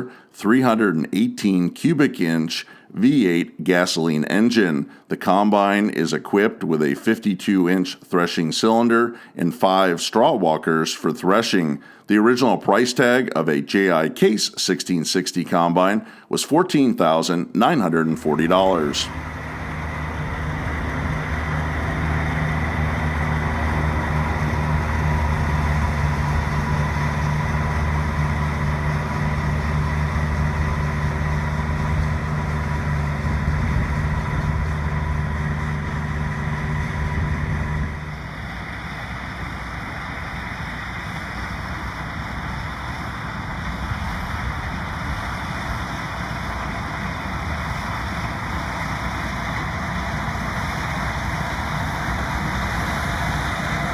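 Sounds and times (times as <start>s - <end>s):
combine harvester engine: 18.0s - 53.9s
low even rumble: 18.2s - 39.7s, 51.5s - 53.9s.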